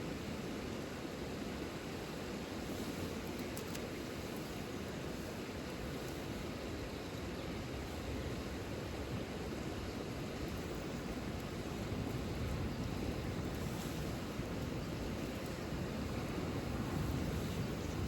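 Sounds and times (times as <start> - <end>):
steady rain falling: 9.0 - 18.0.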